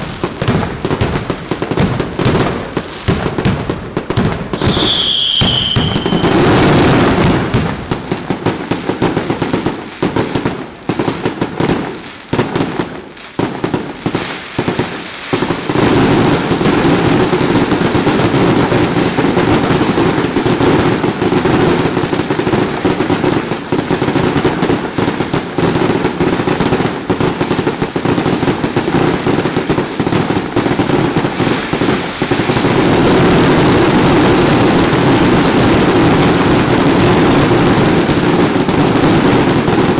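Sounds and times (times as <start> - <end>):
fireworks exploding: 0.0 - 39.9
firework whistle: 4.5 - 7.9.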